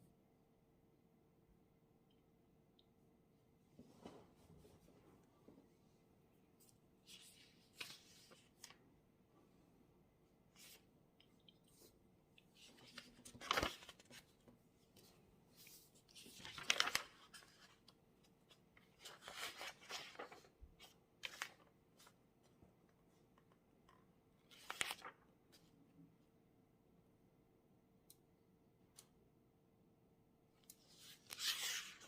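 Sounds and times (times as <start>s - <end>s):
paper rustling: 7.0s - 8.8s, 12.5s - 22.2s, 24.5s - 25.7s, 30.9s - 32.0s.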